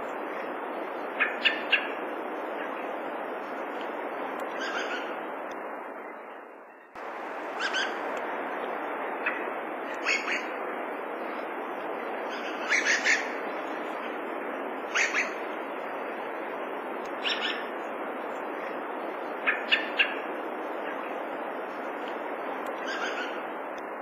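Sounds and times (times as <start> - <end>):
steady hiss: 0.0 - 6.2, 7.0 - 24.0
thrush calling: 4.5 - 5.2, 7.0 - 8.4, 9.1 - 10.6, 12.2 - 14.0, 14.8 - 15.5, 17.2 - 17.8, 22.8 - 23.5.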